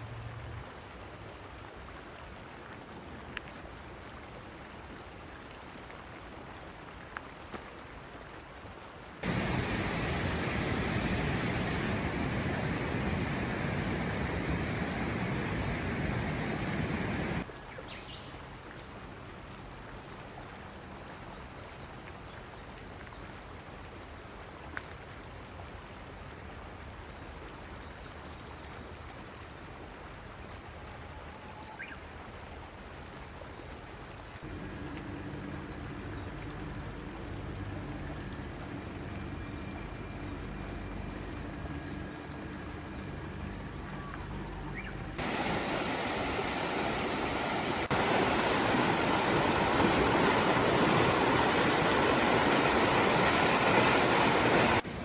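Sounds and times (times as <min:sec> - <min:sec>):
mountain stream rushing: 0:01.3 - 0:17.5, 0:45.2 - 0:55.0
low steady hum: 0:09.2 - 0:17.5, 0:34.4 - 0:55.0.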